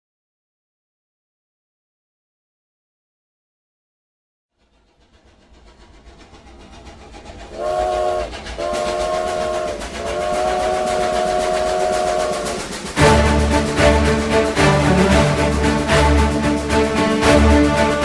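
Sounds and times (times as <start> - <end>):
train rumble and clatter: 4.6 - 18.0
multi-note train whistle: 7.5 - 18.0.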